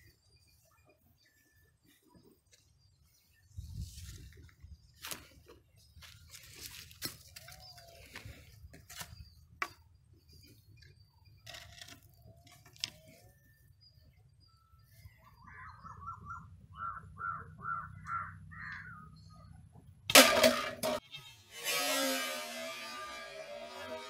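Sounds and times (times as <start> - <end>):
bird calls: 5.0 - 19.8.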